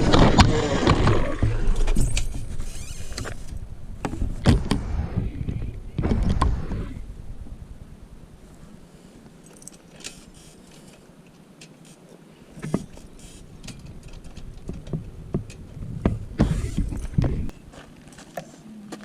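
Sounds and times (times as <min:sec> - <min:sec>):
light clicks knocks and rattles: 0:12.6 - 0:17.5.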